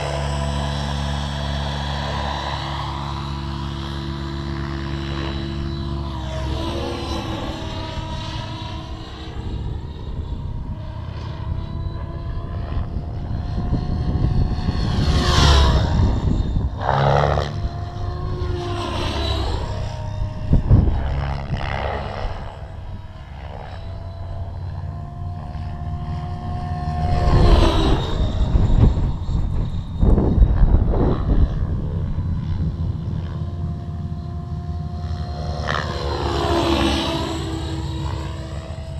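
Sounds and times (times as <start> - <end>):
model helicopter rotor whine: 0.0 - 38.9
wind rumble on microphone: 7.3 - 24.0, 24.8 - 35.9.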